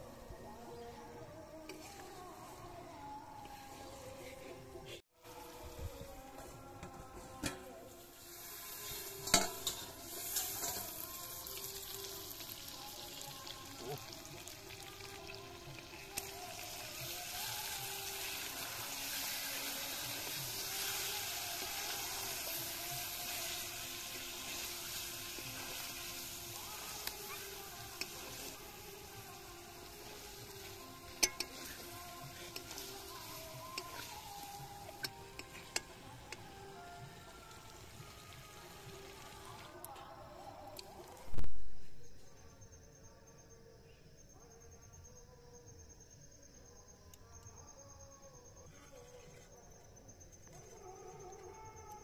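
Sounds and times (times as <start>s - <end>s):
meat sizzling in a wok: 7.9s - 39.7s.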